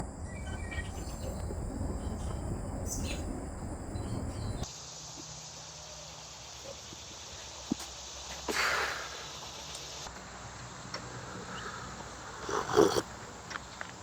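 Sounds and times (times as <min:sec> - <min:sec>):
low rumble: 0:00.0 - 0:04.6
insects chirping: 0:00.0 - 0:14.0.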